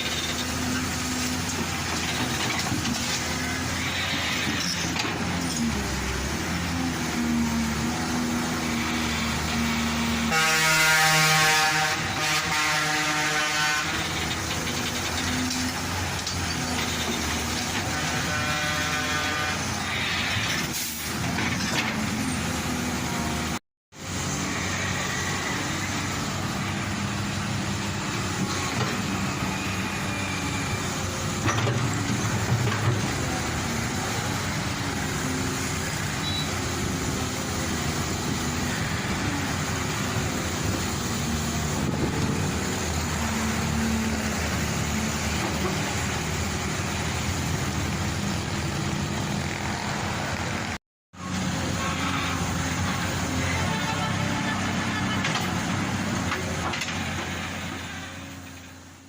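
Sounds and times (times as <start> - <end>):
heavy vehicle engine running: 0.0 - 59.0
horn sounding: 10.2 - 14.2, 17.8 - 20.1, 51.7 - 55.8.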